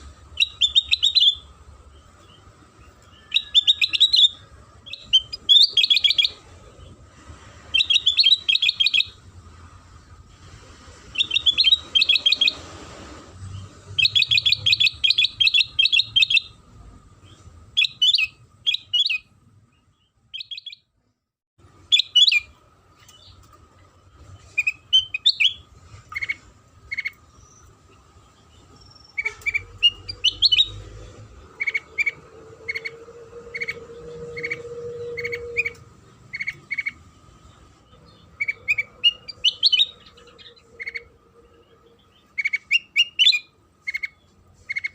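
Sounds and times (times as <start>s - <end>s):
bird chattering trills and chirps: 0.3s - 6.4s, 7.7s - 9.2s, 11.2s - 12.6s, 13.9s - 16.6s, 24.4s - 30.8s, 31.6s - 44.9s.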